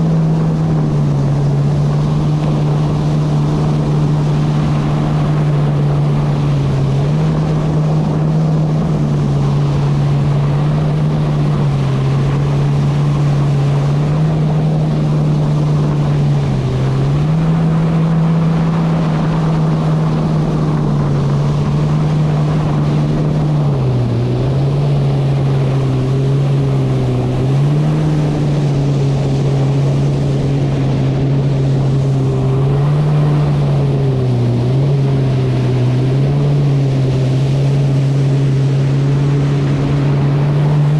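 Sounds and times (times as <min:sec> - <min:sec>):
jet ski engine running: 0:00.0 - 0:40.9
wind and water rushing: 0:00.0 - 0:40.9.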